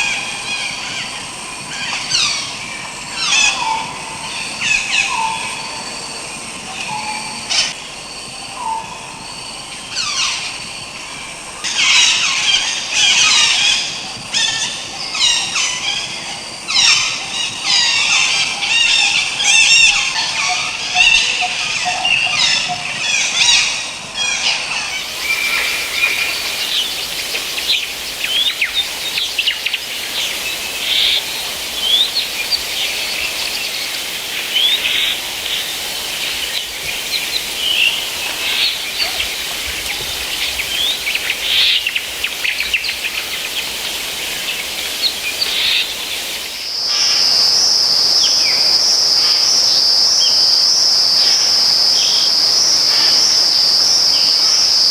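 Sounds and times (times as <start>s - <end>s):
natural ambience hiss: 0.0s - 54.9s
birds chirping and trilling: 24.8s - 46.7s.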